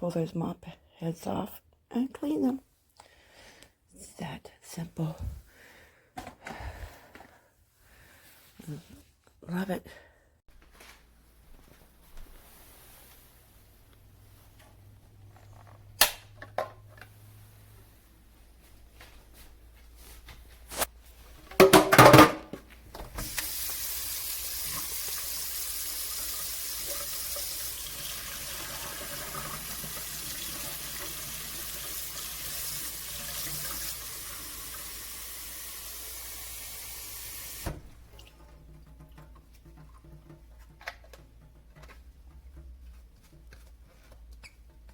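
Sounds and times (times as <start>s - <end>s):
tap water running into sink: 23.0s - 40.3s.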